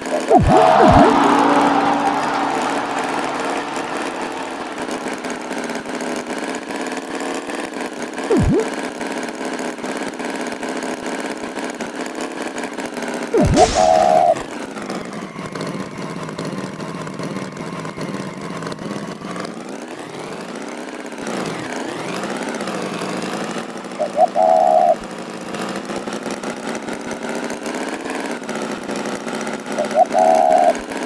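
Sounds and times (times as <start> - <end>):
cartoon tractor engine: 0.2 - 6.1, 13.4 - 14.4
high toots: 0.2 - 6.3, 13.4 - 14.4.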